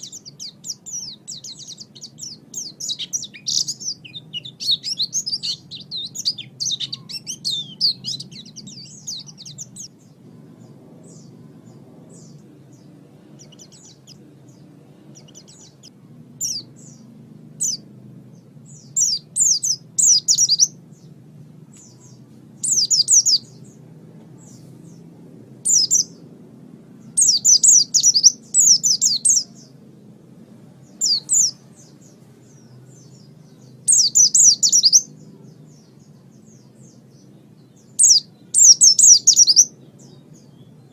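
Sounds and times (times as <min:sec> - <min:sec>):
bird twittering song: 0:00.0 - 0:29.8, 0:30.6 - 0:40.9
faint low hum: 0:00.0 - 0:40.9.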